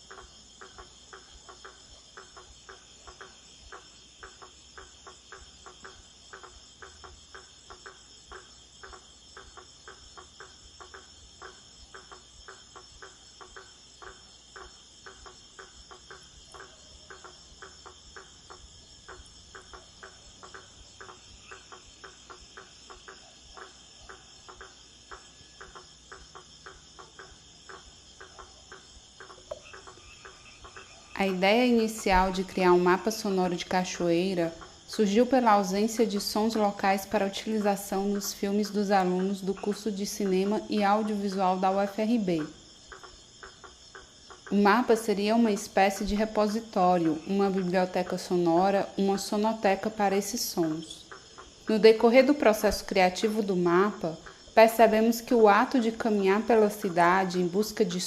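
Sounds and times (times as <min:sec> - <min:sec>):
crickets trilling: 0:00.0 - 0:58.0
insect clicking call: 0:00.0 - 0:58.0.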